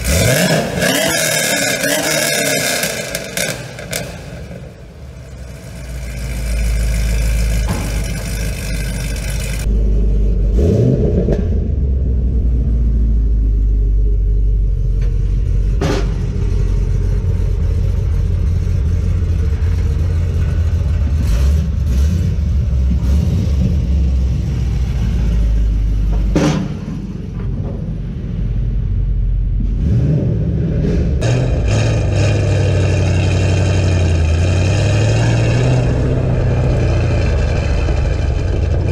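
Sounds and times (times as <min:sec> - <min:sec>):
car engine rumbling: 0:00.0 - 0:38.9.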